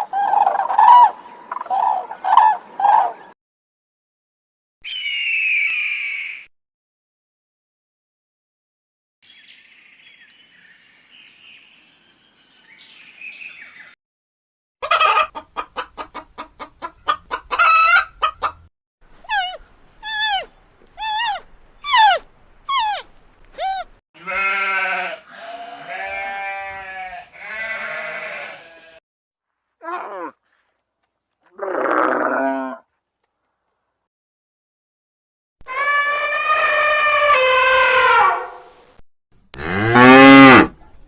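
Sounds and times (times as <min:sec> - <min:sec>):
chicken clucking: 0:14.8 - 0:18.7
short falling animal calls: 0:19.2 - 0:23.9
long bleats: 0:24.2 - 0:29.0, 0:31.5 - 0:32.8, 0:39.6 - 0:40.7.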